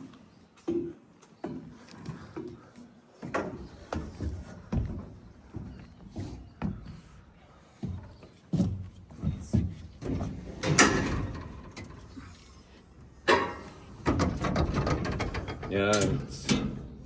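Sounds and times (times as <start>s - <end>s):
knocks and clunks: 9.2s - 12.4s, 13.2s - 17.0s.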